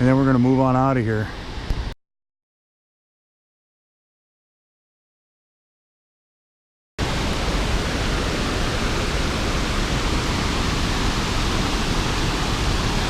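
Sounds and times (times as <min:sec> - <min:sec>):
waterfall roaring: 0:07.0 - 0:13.0.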